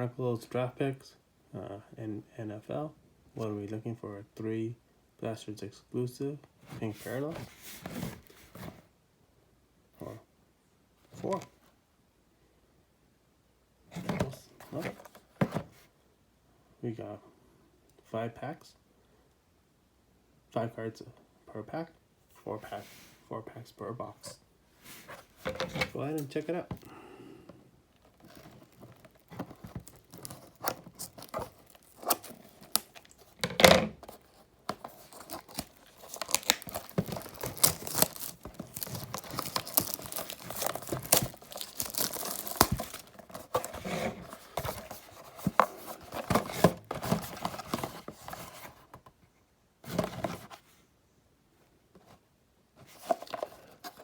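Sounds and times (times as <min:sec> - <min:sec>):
plastic wrapping crinkling and tearing: 0:28.0 - 0:33.4, 0:34.2 - 0:46.4.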